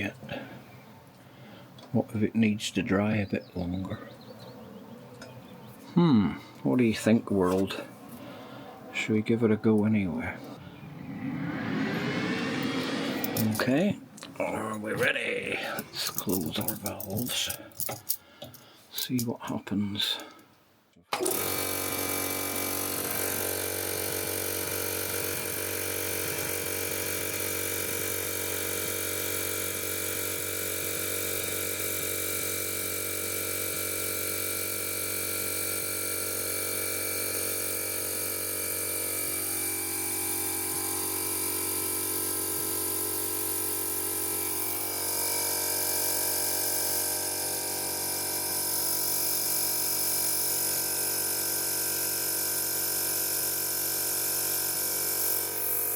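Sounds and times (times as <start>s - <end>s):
air compressor running: 21.2s - 26.1s, 41.3s - 55.9s.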